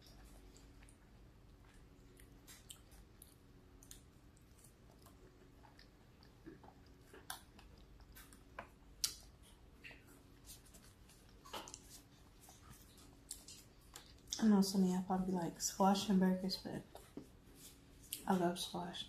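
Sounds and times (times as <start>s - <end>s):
chewing mouth sounds: 0.0s - 14.4s.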